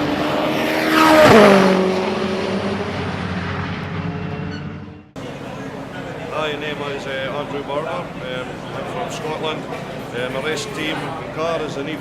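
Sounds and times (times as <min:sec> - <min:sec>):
race car passing at speed: 0:00.0 - 0:05.4.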